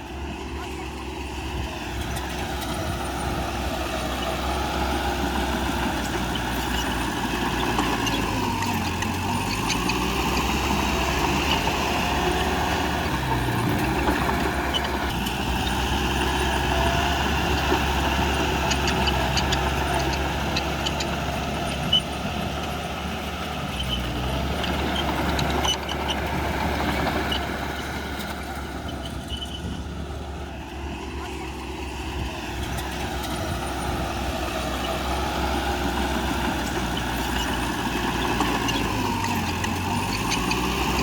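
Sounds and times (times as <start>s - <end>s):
diesel machinery running: 0.0s - 41.0s.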